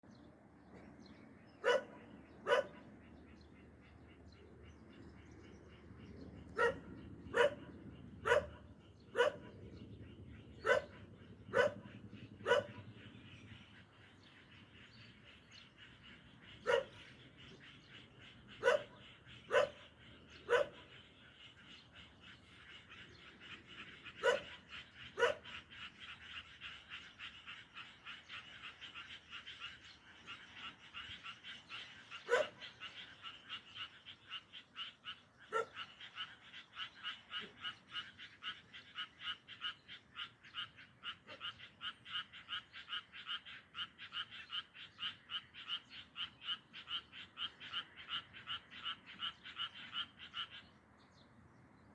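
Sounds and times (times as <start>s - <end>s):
dog barking: 1.6s - 2.9s, 6.6s - 9.6s, 10.6s - 12.9s, 16.6s - 17.0s, 18.6s - 20.9s, 24.2s - 25.6s, 32.3s - 32.6s, 35.5s - 35.8s.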